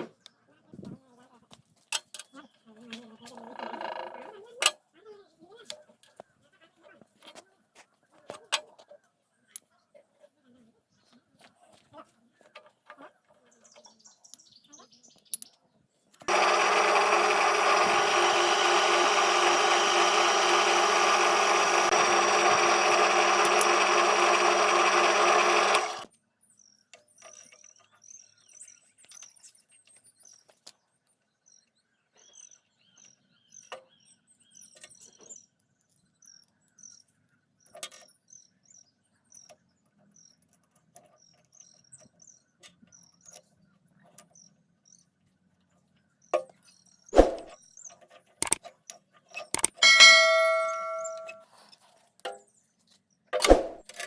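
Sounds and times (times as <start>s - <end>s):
small clicks: 16.2s - 26.1s, 48.4s - 48.6s, 49.5s - 50.0s
small motor running: 16.2s - 26.1s, 49.6s - 51.4s.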